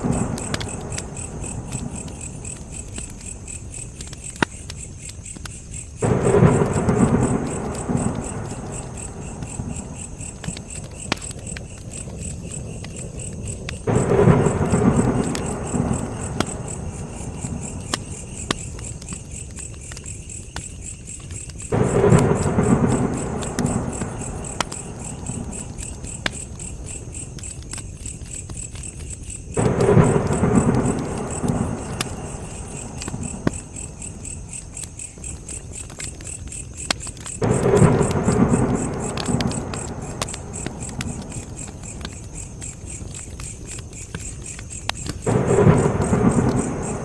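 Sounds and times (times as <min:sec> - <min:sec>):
campfire crackling and popping: 0:00.0 - 0:47.0
crickets chirping: 0:00.0 - 0:47.0.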